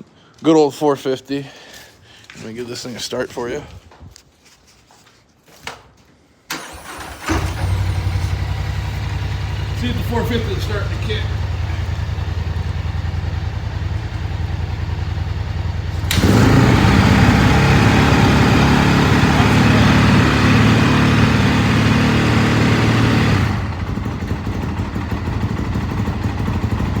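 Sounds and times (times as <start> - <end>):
engine idling: 6.5 - 27.0
single-cylinder engine revving: 6.5 - 27.0.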